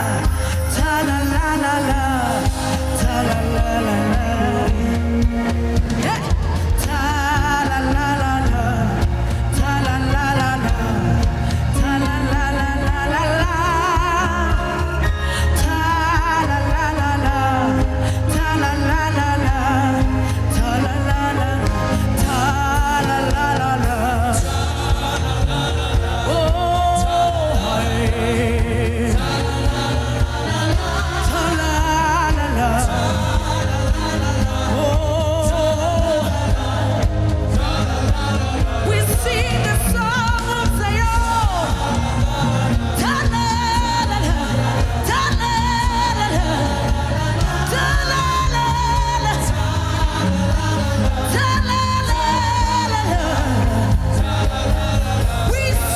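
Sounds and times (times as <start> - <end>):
keyboard and bass backing: 0.0 - 55.9
person singing long notes: 0.0 - 55.9.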